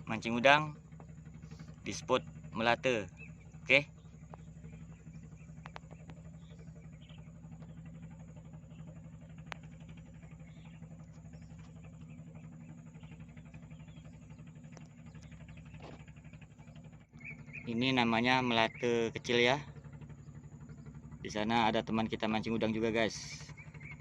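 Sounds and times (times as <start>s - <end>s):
small boat engine droning: 0.0s - 24.0s
faint clicks: 4.2s - 6.6s, 9.3s - 11.9s.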